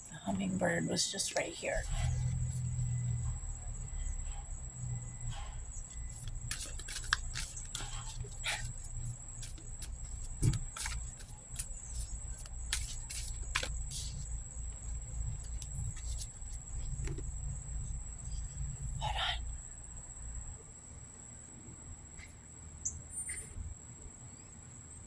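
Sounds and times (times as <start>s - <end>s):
short rustle: 6.0s - 17.1s.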